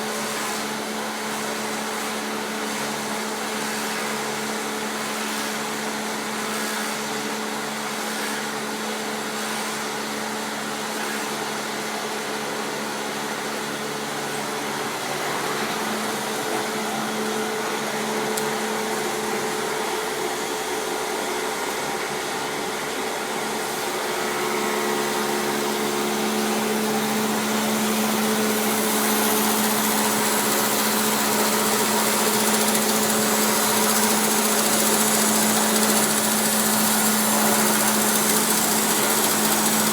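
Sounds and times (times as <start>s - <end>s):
log-rounding machine motor hum: 14.9s - 39.9s.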